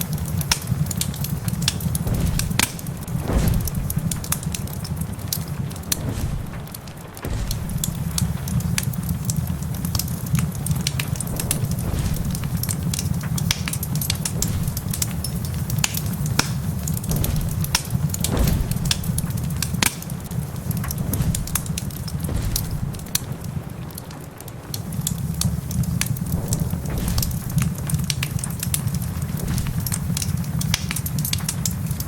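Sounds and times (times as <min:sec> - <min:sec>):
wood fire crackling and popping: 0:00.0 - 0:32.0
steady low rumble: 0:00.2 - 0:32.0.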